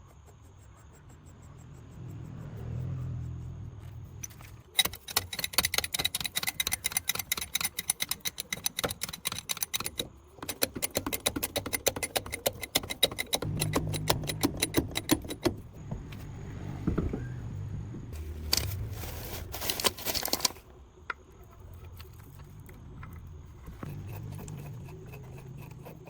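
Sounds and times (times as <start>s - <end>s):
ratchet wrench clicking: 4.2s - 15.6s.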